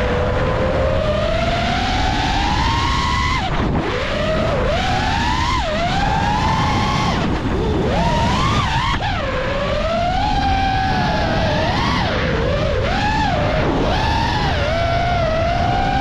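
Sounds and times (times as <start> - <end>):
drone motors whining: 0.0 - 16.0
wind rush: 0.0 - 16.0.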